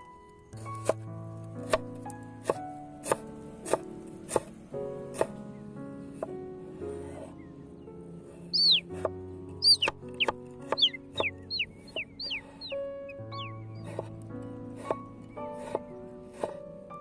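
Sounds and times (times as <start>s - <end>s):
background music: 0.0s - 17.0s
cleaver chopping on wooden board: 2.4s - 4.5s, 5.2s - 5.4s, 15.6s - 16.6s
bird chirping: 7.4s - 14.1s.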